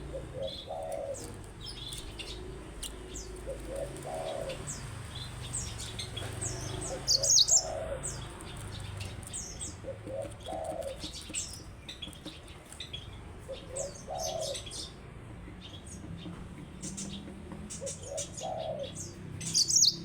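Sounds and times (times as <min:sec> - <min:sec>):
dove cooing: 0:00.0 - 0:11.6, 0:13.4 - 0:15.0, 0:17.6 - 0:20.0
canary chirping and singing: 0:00.1 - 0:15.0, 0:16.8 - 0:20.0.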